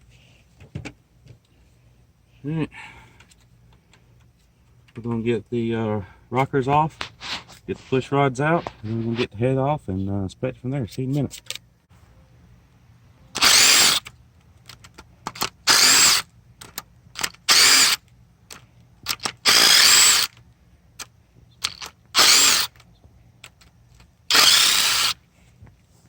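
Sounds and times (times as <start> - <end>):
cordless driver spinning out bolts: 13.3 - 18.0, 19.0 - 20.4, 21.0 - 22.8, 24.3 - 25.2.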